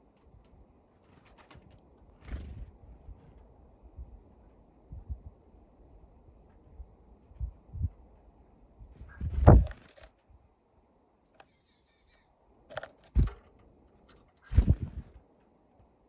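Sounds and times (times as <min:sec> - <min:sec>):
birds pecking on feeder: 0:12.7 - 0:15.1.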